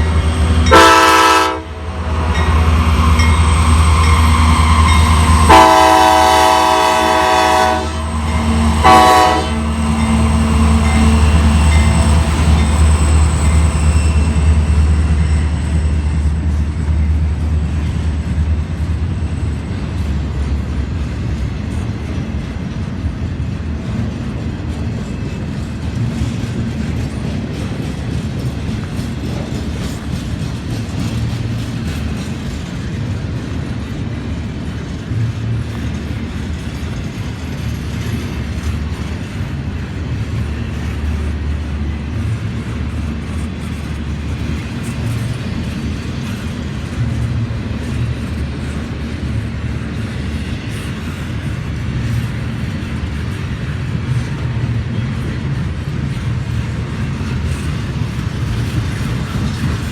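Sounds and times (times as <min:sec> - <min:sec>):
train cars rumbling past: 0:00.0 - 0:59.9
high wheel squeal: 0:02.4 - 0:16.5.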